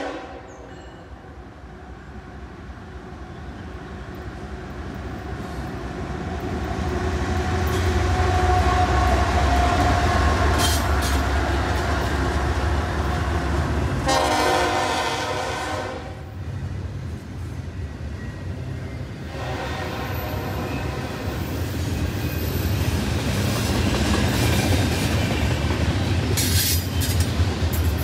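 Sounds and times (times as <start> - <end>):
locomotive horn: 0.0 - 1.1, 8.1 - 10.9, 14.0 - 16.4, 19.3 - 21.4
diesel train engine rumble: 0.0 - 28.0
train wheels on rails: 0.0 - 28.0.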